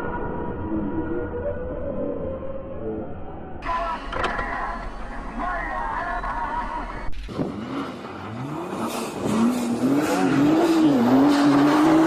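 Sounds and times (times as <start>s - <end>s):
car engine revving: 3.6s - 12.0s.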